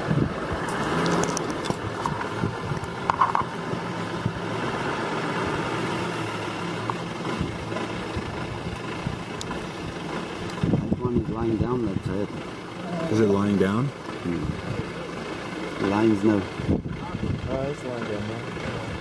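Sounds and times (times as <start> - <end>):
wind noise: 0.0 - 4.6, 10.5 - 12.1, 16.5 - 17.6
vehicle engine idling: 0.0 - 19.0.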